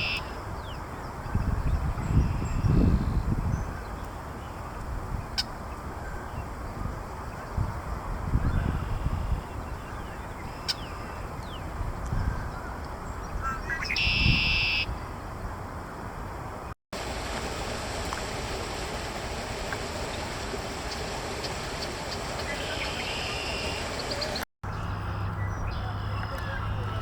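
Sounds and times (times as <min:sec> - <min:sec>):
bird song with buzzy trill: 0:00.0 - 0:07.6, 0:08.4 - 0:15.1, 0:21.5 - 0:26.8.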